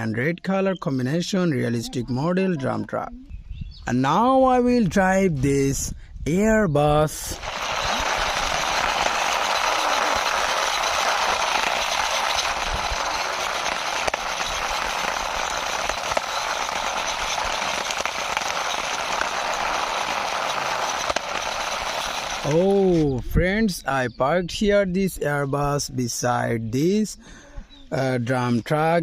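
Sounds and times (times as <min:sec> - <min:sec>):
toy wheels rolling on ground: 0:07.1 - 0:23.2.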